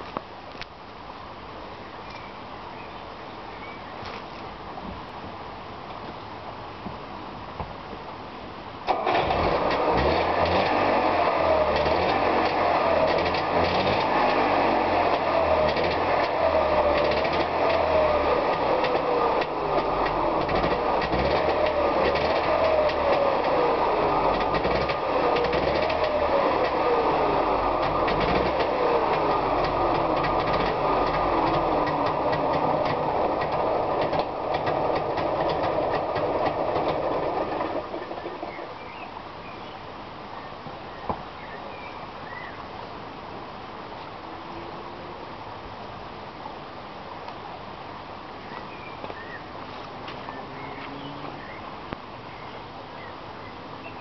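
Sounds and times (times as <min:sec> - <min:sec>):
two-stroke engine running: 0:09.1 - 0:38.7.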